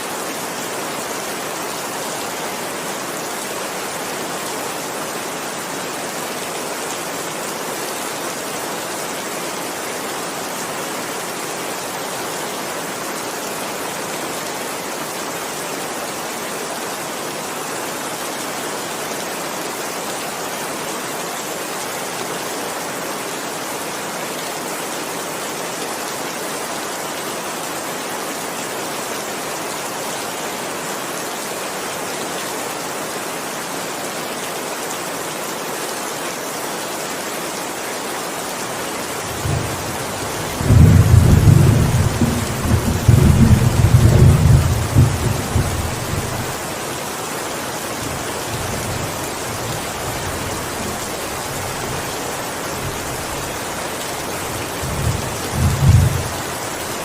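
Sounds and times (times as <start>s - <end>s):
heavy rain: 0.0s - 57.0s
thunder rumbling: 39.4s - 46.5s, 54.8s - 56.4s.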